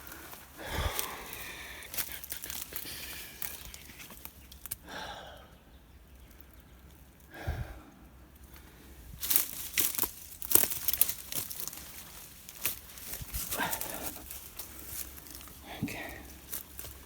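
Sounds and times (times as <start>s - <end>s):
footsteps crunching through dry leaves: 0.0s - 4.8s, 9.1s - 17.0s.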